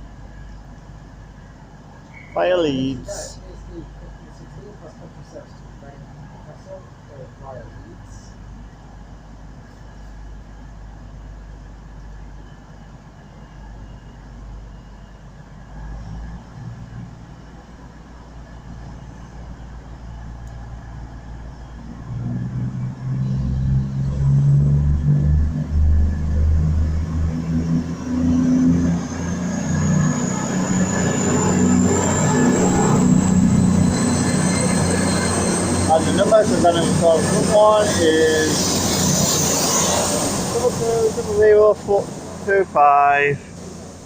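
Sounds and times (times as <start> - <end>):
diesel train engine rumble: 0.0 - 44.0
high engine whine: 0.0 - 44.0.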